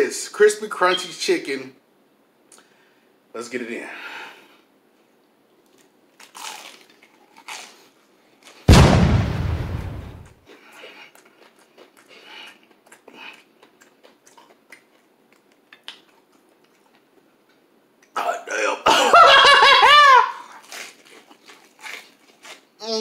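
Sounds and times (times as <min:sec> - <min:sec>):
crispy fried chicken crunching: 0:05.7 - 0:08.7, 0:10.5 - 0:17.1, 0:20.4 - 0:22.7
loud deep hit with crackling tail: 0:08.7 - 0:10.3.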